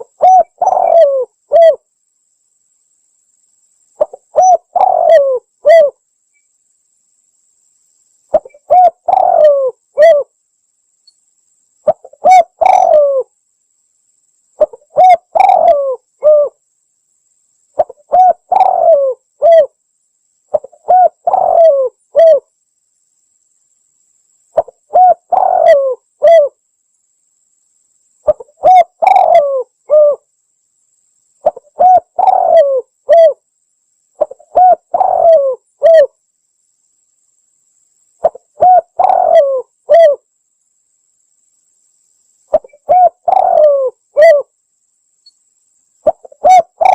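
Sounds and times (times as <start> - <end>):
dove cooing: 0.0 - 1.8, 4.0 - 6.0, 8.3 - 10.3, 11.8 - 13.3, 14.6 - 16.6, 17.8 - 19.8, 20.5 - 22.4, 24.6 - 26.6, 28.2 - 30.2, 31.4 - 33.4, 34.2 - 36.1, 38.2 - 40.2, 42.5 - 44.5, 46.0 - 46.9.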